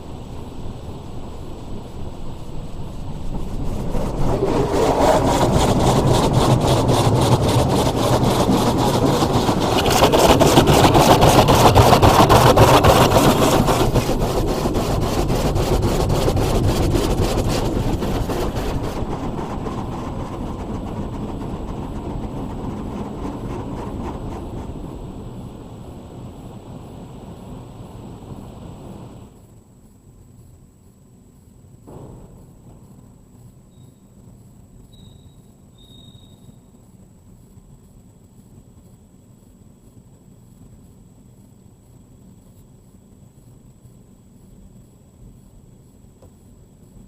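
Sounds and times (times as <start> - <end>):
car wash brushes scrubbing: 3.2 - 25.2.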